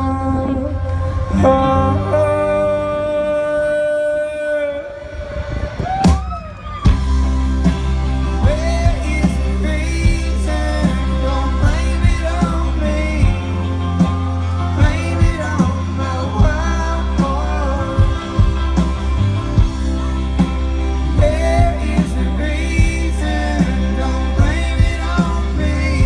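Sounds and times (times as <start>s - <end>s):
bass: 0.0s - 26.0s
live rock band: 5.0s - 26.0s
drum beat: 5.8s - 17.4s, 18.0s - 22.2s
person singing: 6.9s - 26.0s.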